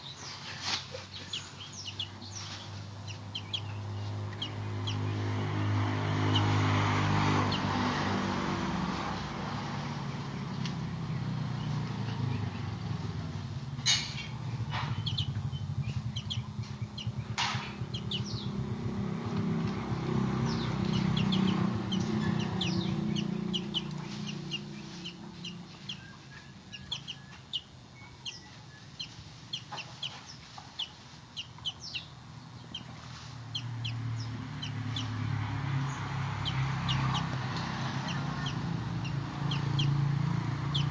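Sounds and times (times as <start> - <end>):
bird twittering: 0.0 - 6.6, 14.1 - 18.9, 20.0 - 40.9.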